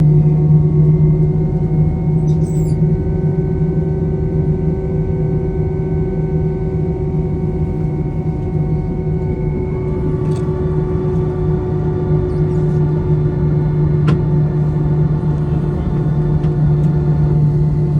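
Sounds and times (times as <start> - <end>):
aircraft cabin hum: 4.8 - 17.9
steady whining tones: 6.7 - 17.9.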